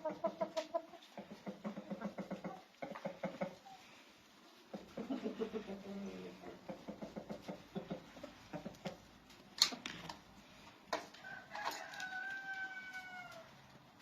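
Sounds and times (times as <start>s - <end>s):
chickens clucking: 0.0s - 14.0s
rooster crowing: 11.2s - 13.6s.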